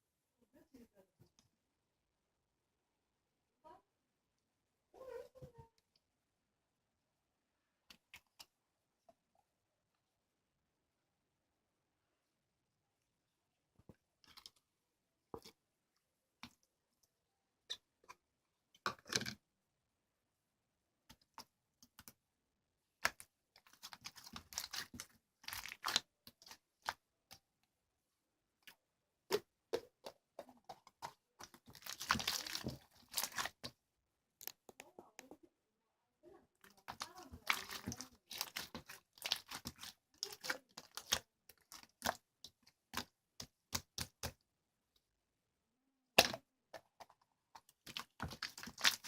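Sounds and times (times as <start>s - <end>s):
slime squishing and crackling: 23.0s - 27.6s, 29.3s - 33.8s, 36.7s - 44.4s, 47.6s - 49.0s.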